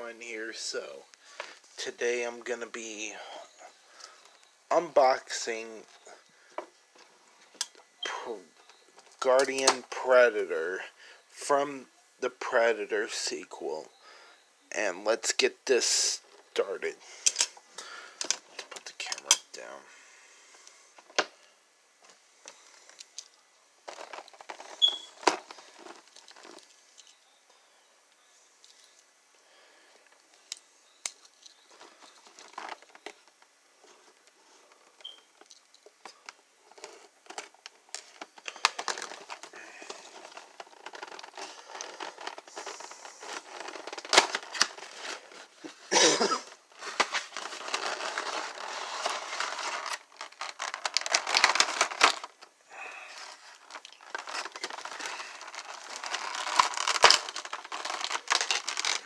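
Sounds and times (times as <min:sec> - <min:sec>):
plastic packaging crinkling and tearing: 0:22.5 - 0:27.2, 0:30.1 - 0:34.8, 0:35.4 - 0:59.0
packaging clicks: 0:46.8 - 0:52.5, 0:53.2 - 0:59.0.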